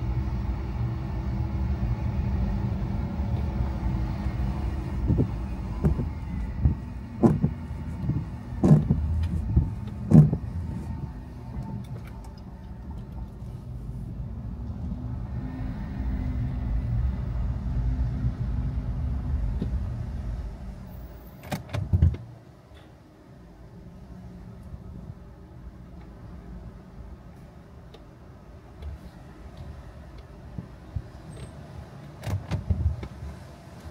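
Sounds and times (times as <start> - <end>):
car engine and road rumble: 0.0 - 33.9
sharp knocks: 5.0 - 10.5.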